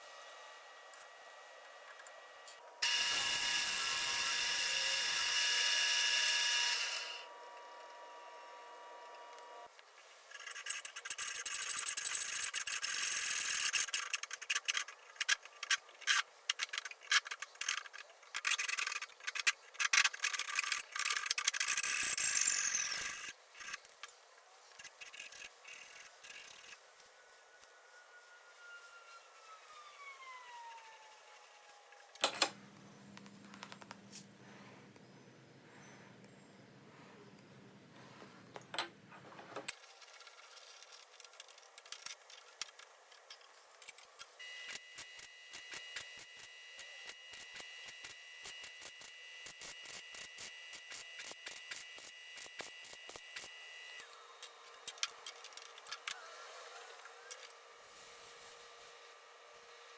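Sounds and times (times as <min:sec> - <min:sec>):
light hiss: 0:57.2 - 0:59.8.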